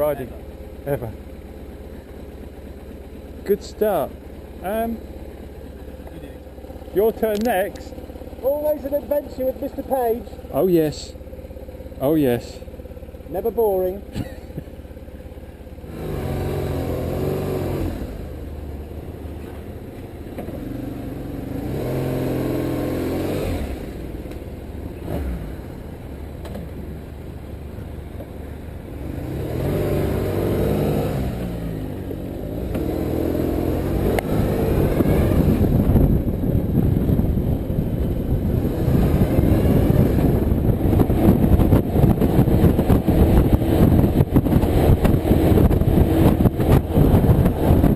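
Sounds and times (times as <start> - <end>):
motorcycle engine accelerating: 0.0 - 47.9
wind noise rushing: 34.8 - 47.9.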